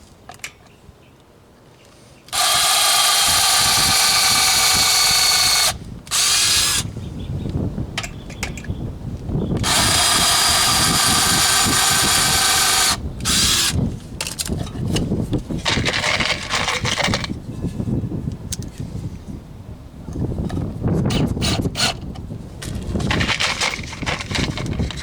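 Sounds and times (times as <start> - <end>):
power drill running under load: 2.3 - 6.9, 9.6 - 13.8.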